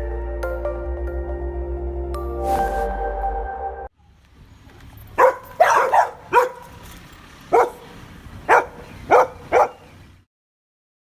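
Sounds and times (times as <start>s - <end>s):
dog barking: 5.2s - 6.8s, 7.5s - 10.0s.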